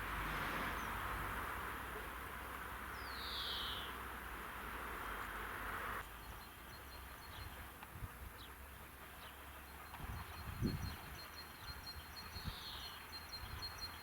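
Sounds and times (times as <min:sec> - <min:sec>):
faint bird chirps: 0:03.0 - 0:03.9.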